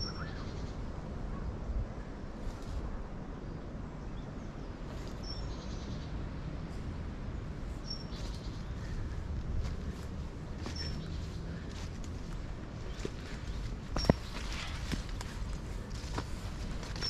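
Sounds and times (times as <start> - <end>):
bird chirping: 0.0 - 0.8, 4.2 - 6.1, 7.7 - 11.8
steady low rumble: 0.0 - 17.0.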